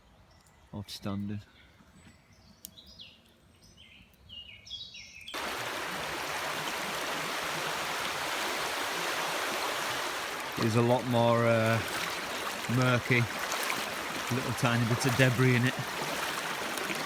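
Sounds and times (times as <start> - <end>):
bird chirping: 0.0 - 5.4
river rushing: 5.4 - 17.0.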